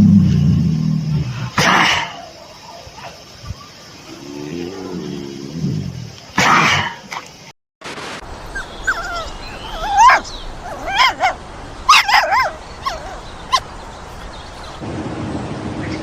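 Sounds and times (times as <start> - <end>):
dog whimpering yips: 8.5 - 14.3.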